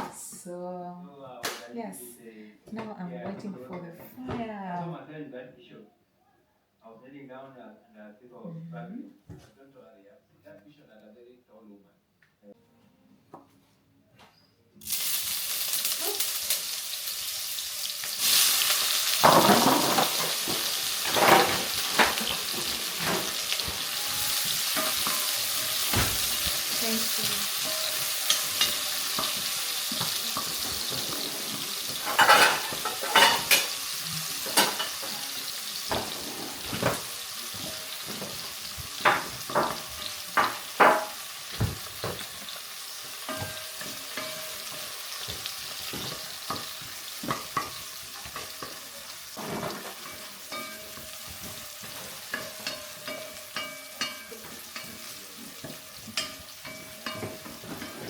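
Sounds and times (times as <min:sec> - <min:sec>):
vegetables sizzling in a pan: 0:14.8 - 0:58.0.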